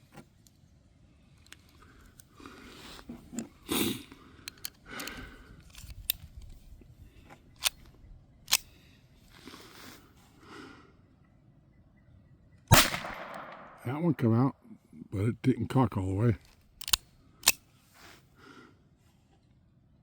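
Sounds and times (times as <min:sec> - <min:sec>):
pistol slide metallic clicks: 0:07.6 - 0:08.8, 0:12.7 - 0:13.8, 0:16.8 - 0:17.7.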